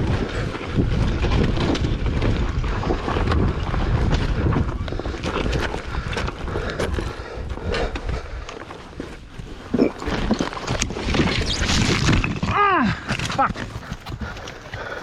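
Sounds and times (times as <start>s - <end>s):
bike knocks and rattles: 0.0s - 9.2s
dirt bike motor rumble: 0.0s - 15.0s
wind buffeting microphone: 0.0s - 15.0s.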